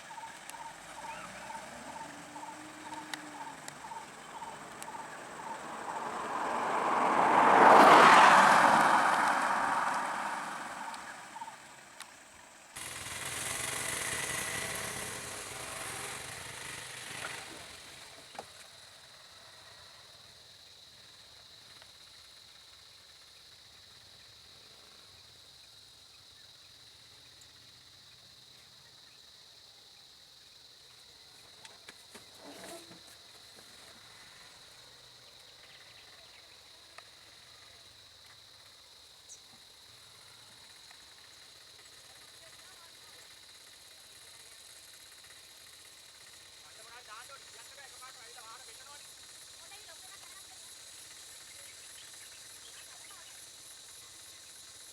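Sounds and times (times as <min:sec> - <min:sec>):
motor vehicle passing: 0:00.0 - 0:18.3.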